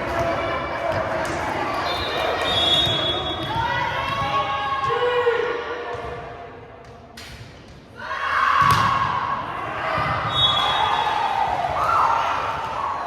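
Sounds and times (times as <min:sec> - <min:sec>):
people shouting and cheering: 0:08.0 - 0:13.0.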